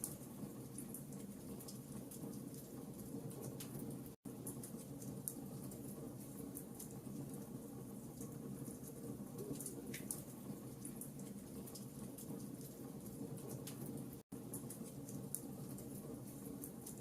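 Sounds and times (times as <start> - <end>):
low rumble of flames: 0.0 - 17.0
wood fire crackling: 0.0 - 17.0.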